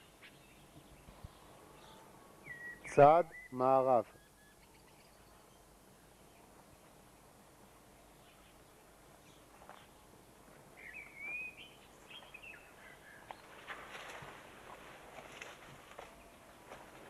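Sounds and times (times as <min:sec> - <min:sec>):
faint outdoor hiss: 0:00.0 - 0:17.0
bird whistling: 0:02.4 - 0:03.5, 0:10.8 - 0:12.6
scuffing footsteps: 0:13.3 - 0:17.0.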